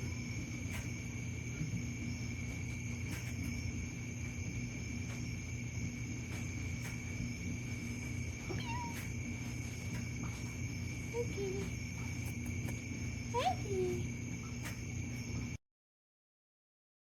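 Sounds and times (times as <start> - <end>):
steady background hum: 0.0 - 15.6
cat chirping meows: 8.5 - 9.1.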